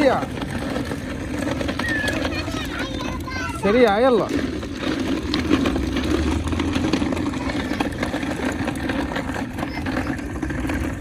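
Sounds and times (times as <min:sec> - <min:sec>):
vehicle motor running: 0:00.0 - 0:11.0.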